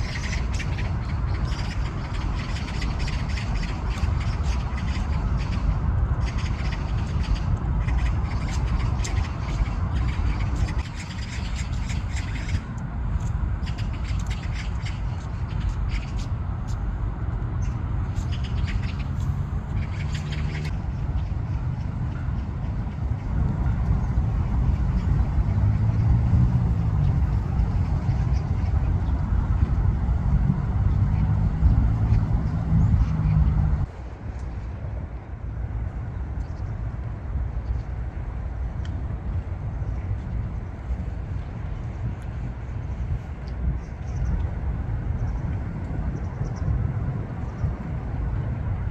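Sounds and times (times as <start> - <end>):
engine rumble with hum: 0.0 - 48.9
outdoor background noise: 0.0 - 48.9
low rumble: 37.2 - 48.9.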